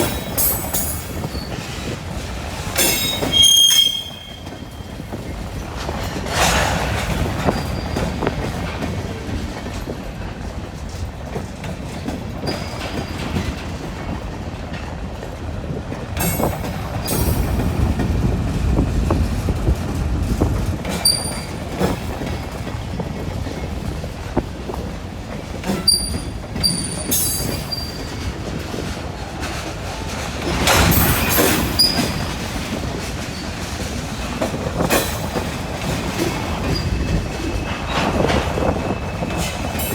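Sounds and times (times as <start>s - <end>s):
freight train wheels rumbling: 0.0s - 39.9s
train cars clanking: 0.0s - 39.9s
high-pitched wheel squeals: 2.9s - 4.7s.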